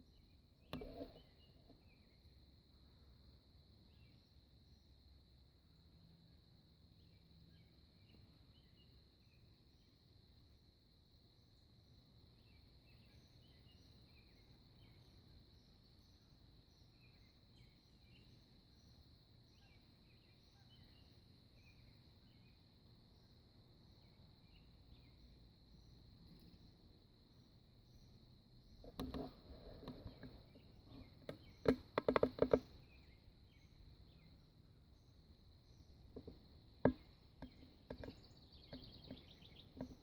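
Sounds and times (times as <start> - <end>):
bird chirps: 28.8 - 40.0.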